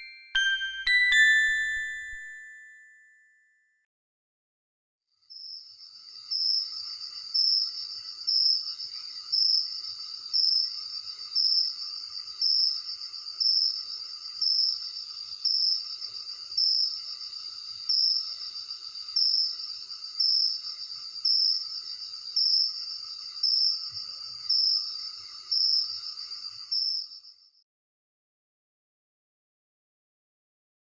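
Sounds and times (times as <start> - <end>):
faint insect calls: 5.2 - 27.6
crickets chirping: 5.3 - 27.6.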